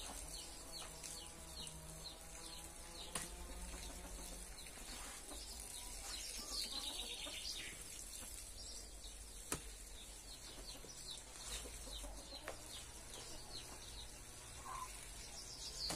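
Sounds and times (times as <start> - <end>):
birds chirping: 0.0 - 15.9.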